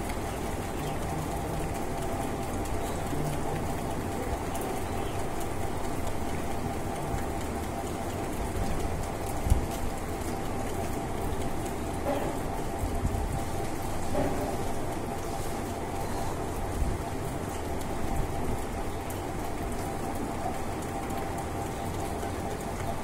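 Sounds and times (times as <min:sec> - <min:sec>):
steady rain: 0:00.0 - 0:23.0.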